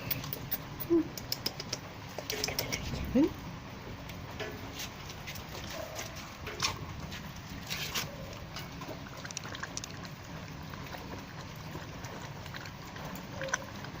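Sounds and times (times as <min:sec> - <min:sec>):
dog lapping water: 0:05.4 - 0:14.0.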